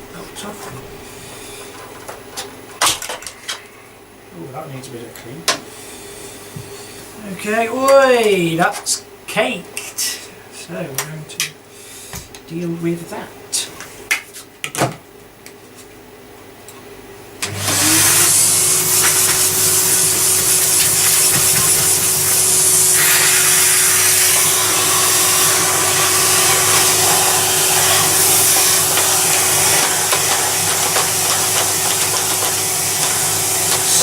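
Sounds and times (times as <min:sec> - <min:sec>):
electric motor whining: 0:17.4 - 0:34.0.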